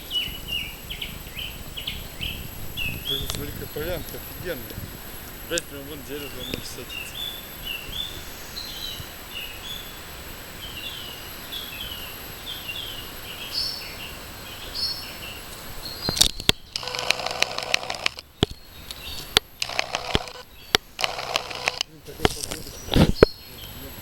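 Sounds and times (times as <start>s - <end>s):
songbirds chirping: 0.0s - 24.0s
steady hiss: 0.0s - 24.0s
sharp clicks: 3.1s - 4.8s, 5.5s - 6.9s, 15.5s - 23.8s
rustling noise: 15.4s - 23.3s.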